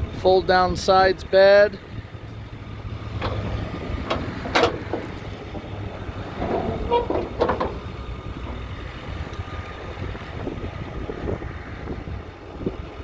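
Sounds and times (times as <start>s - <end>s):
diesel engine idling: 0.0s - 13.0s
short knocks or clanks: 3.1s - 9.7s.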